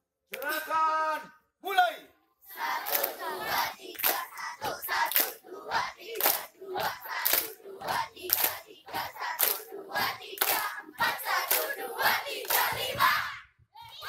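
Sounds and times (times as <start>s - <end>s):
hand claps: 2.8s - 5.4s, 6.0s - 13.0s
children shouting to a beat: 7.8s - 14.0s.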